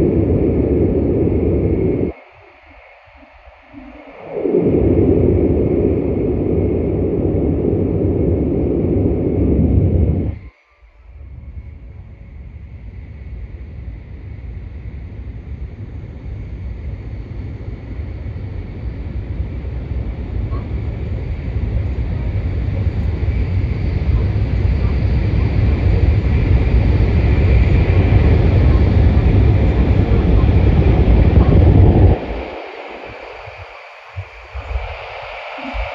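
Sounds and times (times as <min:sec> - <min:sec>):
train cabin low rumble: 0:00.0 - 0:02.1, 0:11.3 - 0:35.0.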